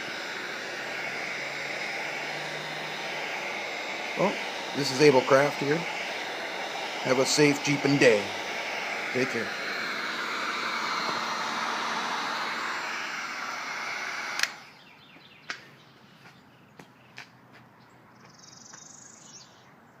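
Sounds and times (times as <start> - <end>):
heat gun blowing hot air: 0.0 - 14.8.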